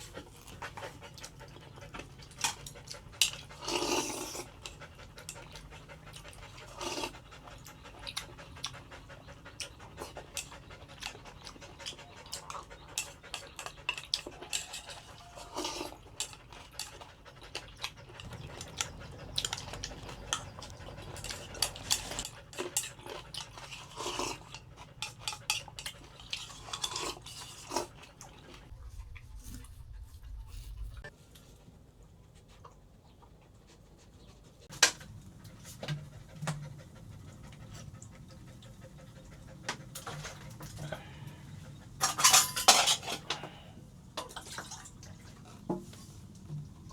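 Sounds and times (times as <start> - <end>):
dog panting: 0.0 - 27.3, 27.9 - 42.6.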